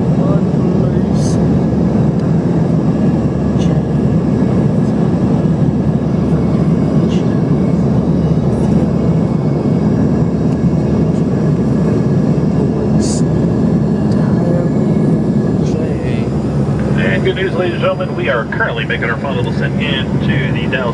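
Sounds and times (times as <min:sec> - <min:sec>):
airplane cabin engine roar: 0:00.0 - 0:20.9.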